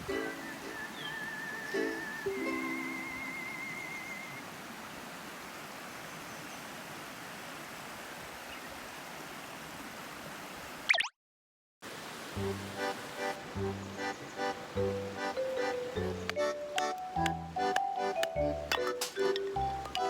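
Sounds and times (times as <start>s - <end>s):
music: 0.0s - 3.4s, 12.4s - 20.0s
ukulele music: 0.0s - 3.4s, 14.5s - 20.0s
forest stream rushing: 0.0s - 10.9s, 11.8s - 20.0s.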